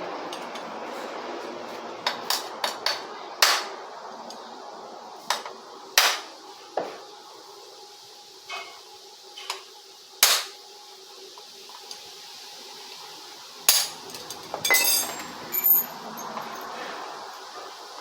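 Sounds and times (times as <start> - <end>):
metal tools clinking and knocking: 13.7 - 16.8.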